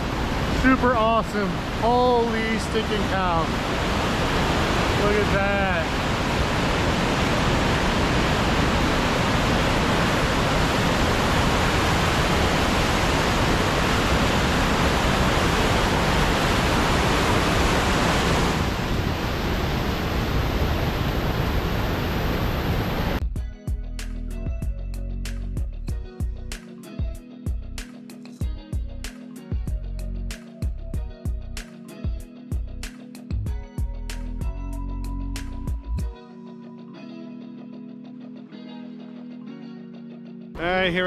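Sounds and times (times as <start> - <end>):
music: 0.0 - 3.9, 23.2 - 41.0
river water rushing: 0.0 - 23.2.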